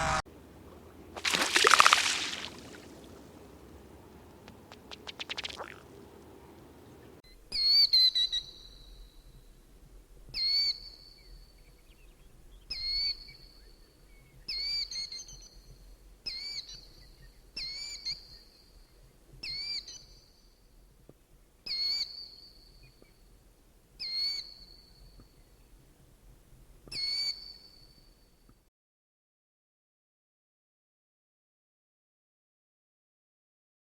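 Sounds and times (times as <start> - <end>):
bird calling: 0.0 - 7.2
faint background noise: 0.0 - 7.7.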